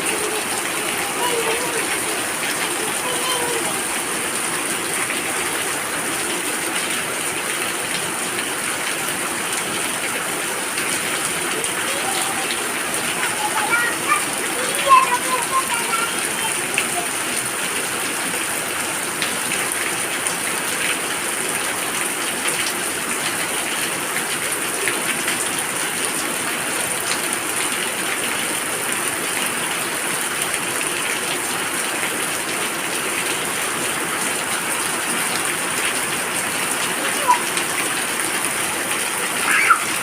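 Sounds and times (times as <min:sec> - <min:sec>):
heavy rain splashing: 0:00.0 - 0:40.0.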